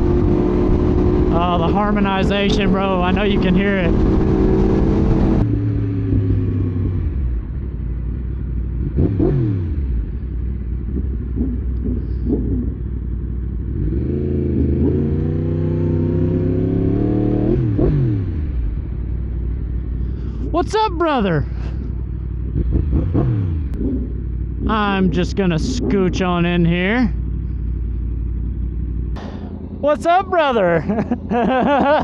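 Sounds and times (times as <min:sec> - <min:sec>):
motorcycle engines revving: 0:00.0 - 0:32.0.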